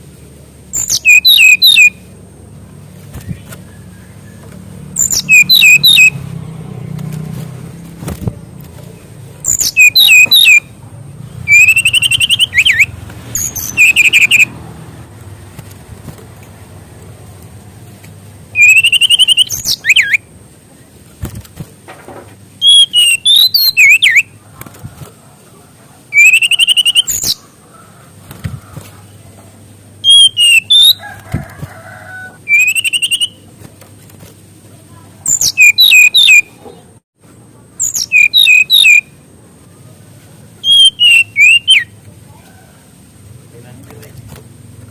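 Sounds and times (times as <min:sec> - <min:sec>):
songbird trills and whistles: 0:00.7 - 0:02.0, 0:03.2 - 0:06.2, 0:09.4 - 0:10.7, 0:11.5 - 0:14.5, 0:18.5 - 0:20.3, 0:22.6 - 0:24.4, 0:26.1 - 0:27.5, 0:30.0 - 0:31.4, 0:32.3 - 0:33.4, 0:35.2 - 0:36.7, 0:37.8 - 0:39.1, 0:40.6 - 0:42.0.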